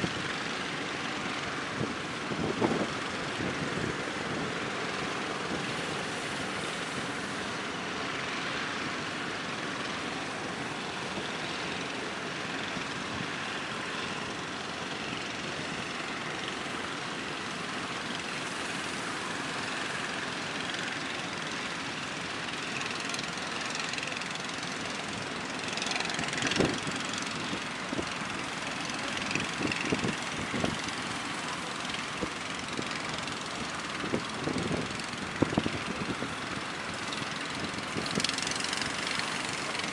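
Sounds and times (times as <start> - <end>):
boat engines droning: 0.0 - 39.9
waves: 0.0 - 39.9
strong wind: 1.6 - 4.7, 26.2 - 28.1, 29.2 - 31.0, 33.8 - 36.7.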